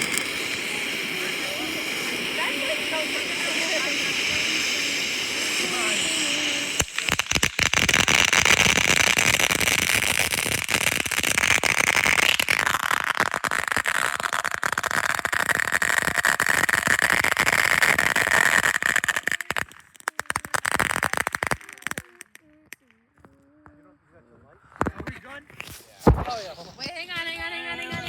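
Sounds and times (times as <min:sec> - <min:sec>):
ground firework hissing and crackling: 0:00.0 - 0:28.0.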